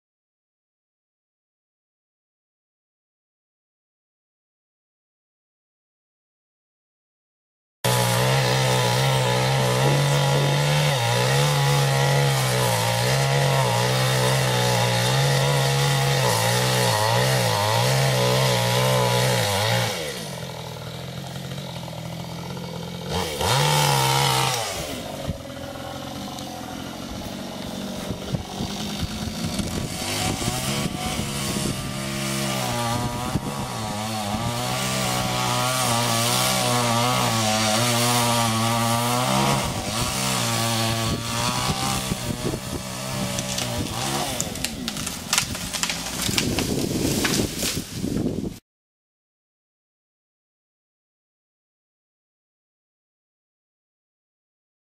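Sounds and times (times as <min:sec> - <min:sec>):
chainsaw revving: 0:07.9 - 0:47.8.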